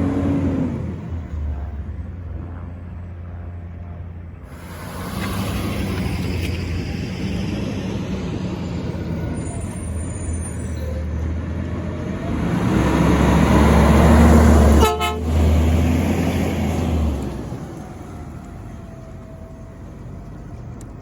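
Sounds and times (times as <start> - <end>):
garbage truck driving past: 4.5 - 20.8
truck horn tap: 14.8 - 15.3.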